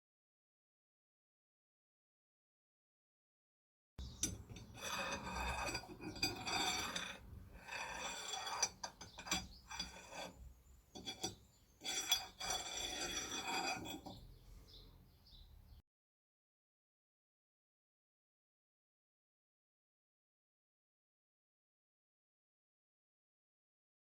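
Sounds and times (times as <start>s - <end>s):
hand tool rasping on metal: 4.0s - 14.8s.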